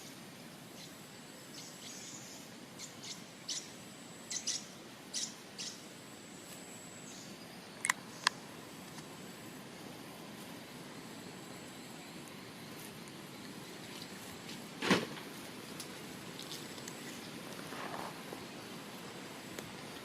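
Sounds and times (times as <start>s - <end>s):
small birds chirping: 0.0s - 9.3s, 15.4s - 20.0s
background hiss: 0.0s - 20.0s
sharp clicks: 7.8s - 9.1s.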